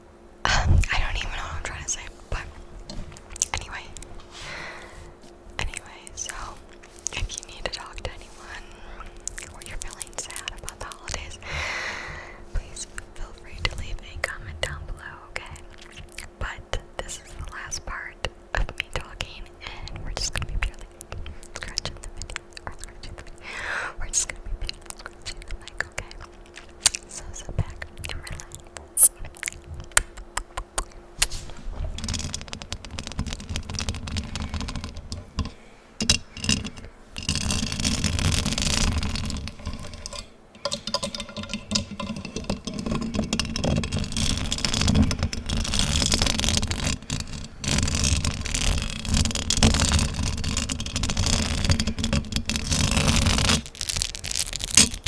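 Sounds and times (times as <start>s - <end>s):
fingers scratching a microphone: 5.2s - 8.6s, 25.3s - 35.5s, 36.5s - 40.3s, 41.1s - 55.0s.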